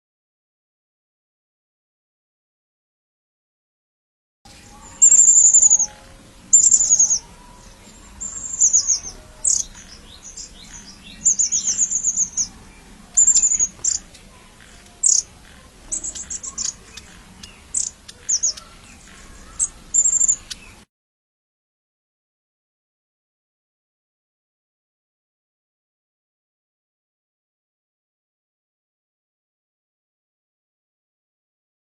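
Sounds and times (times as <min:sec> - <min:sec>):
bird calling high-pitched phrases: 0:04.5 - 0:20.8.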